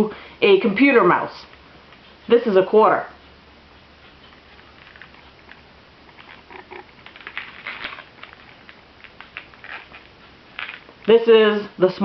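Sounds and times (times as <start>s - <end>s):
small clicks and rubbing: 4.1s - 11.2s.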